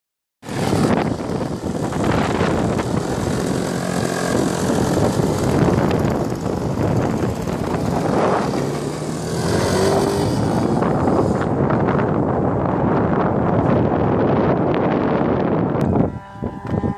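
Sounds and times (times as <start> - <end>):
wind noise: 0.4 - 16.9
model plane engine running: 0.5 - 9.7.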